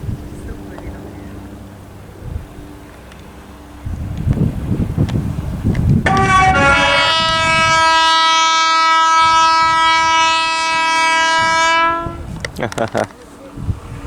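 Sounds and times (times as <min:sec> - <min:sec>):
train rumbling: 0:00.0 - 0:14.0
train horn blast: 0:06.0 - 0:12.5.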